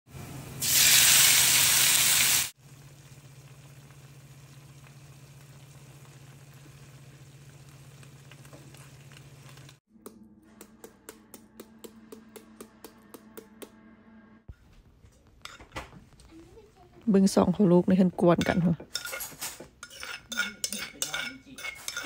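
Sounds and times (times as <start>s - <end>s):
garlic sizzling in oil: 0.1s - 9.8s, 18.4s - 22.0s.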